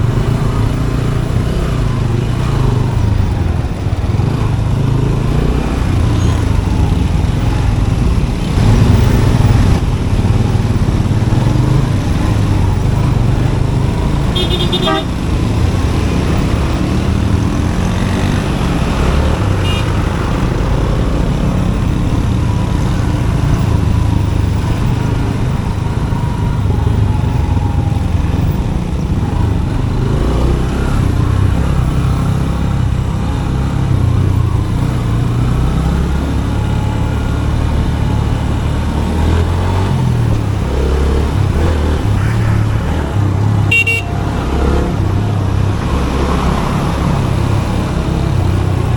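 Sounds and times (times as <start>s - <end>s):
motorcycle engine running: 0.0s - 48.9s
horn toot: 14.3s - 15.2s, 19.6s - 20.0s, 41.8s - 44.9s.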